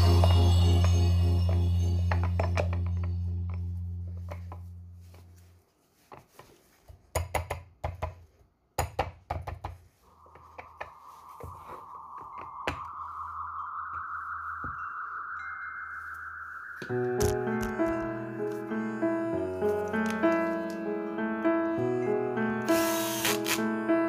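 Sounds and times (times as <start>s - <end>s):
background music: 0.0s - 4.6s, 11.5s - 24.0s
whirring hum rising in pitch: 0.0s - 5.3s.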